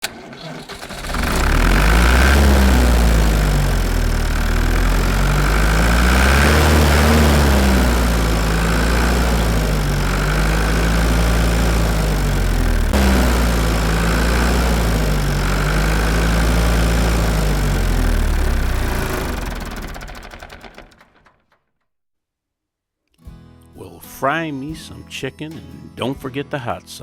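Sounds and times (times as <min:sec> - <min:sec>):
engine idling: 0:00.0 - 0:21.3.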